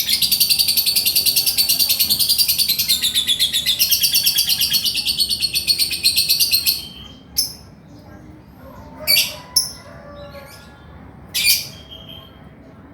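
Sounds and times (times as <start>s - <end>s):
lovebird chattering trill: 0.0s - 7.6s.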